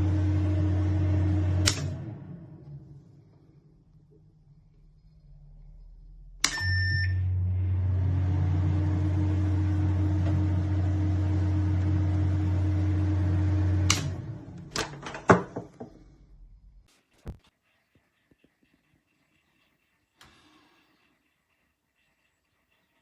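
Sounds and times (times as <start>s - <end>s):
microwave electrical hum: 0.0s - 23.0s
microwave beep: 6.4s - 7.4s.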